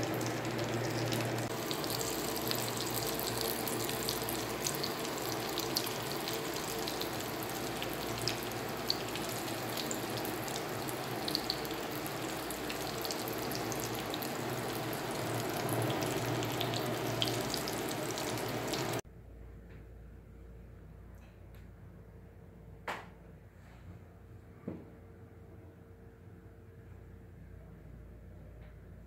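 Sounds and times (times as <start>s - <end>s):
food sizzling in frying pan: 0.0s - 19.0s.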